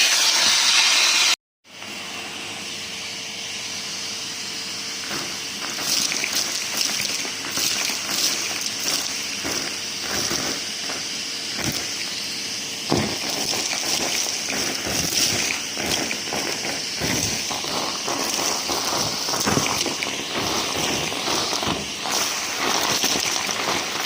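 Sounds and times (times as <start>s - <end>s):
vacuum cleaner running: 0.0s - 24.0s
debris rattling up hose: 5.0s - 12.2s, 12.8s - 24.0s.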